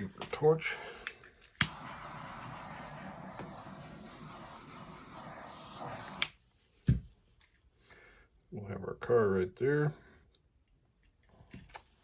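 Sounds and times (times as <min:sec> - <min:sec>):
torch flame hissing: 0:01.6 - 0:06.4.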